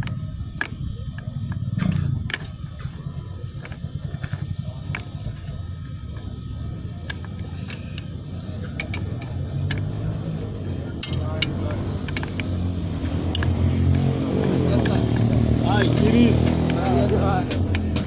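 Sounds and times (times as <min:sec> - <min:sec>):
sharp clicks and taps: 0:11.0 - 0:18.0.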